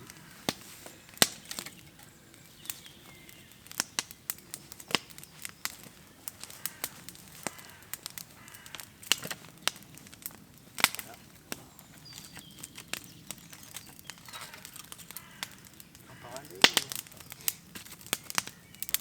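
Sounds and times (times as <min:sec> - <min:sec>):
sharp clicks and snaps: 0:04.8 - 0:19.0.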